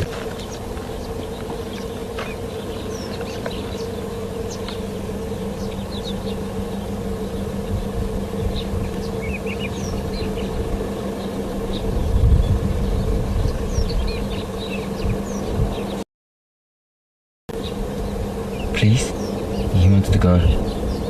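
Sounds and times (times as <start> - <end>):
bird chirps: 0.3 - 7.6, 8.5 - 16.0, 17.6 - 21.0.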